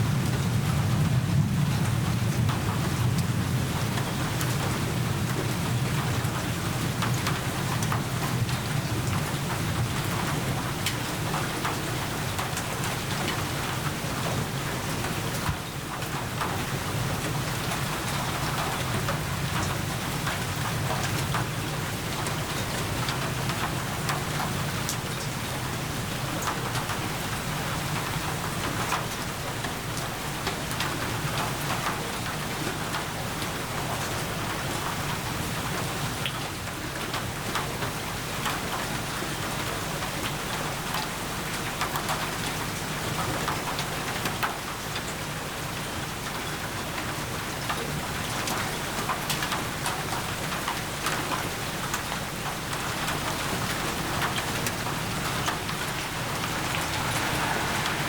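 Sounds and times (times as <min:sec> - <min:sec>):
steady rainfall: 0:00.0 - 0:58.0
low rumble: 0:55.0 - 0:58.0.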